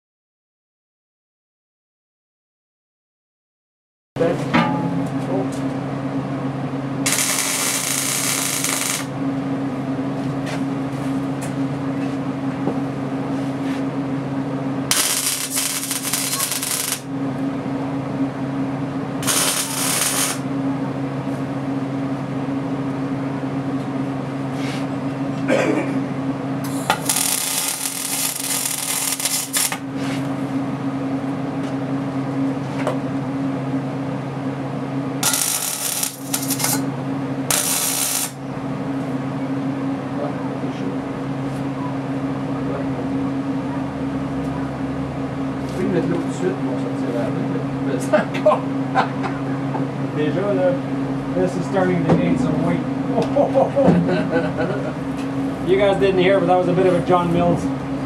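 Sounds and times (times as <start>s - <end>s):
welding arc crackle: 7.0s - 9.2s, 14.9s - 17.1s, 19.2s - 20.5s, 26.7s - 29.9s, 35.2s - 36.9s, 37.5s - 38.4s
welder hum: 7.0s - 9.4s, 14.8s - 17.5s, 19.2s - 20.8s, 26.6s - 30.6s, 35.2s - 38.5s.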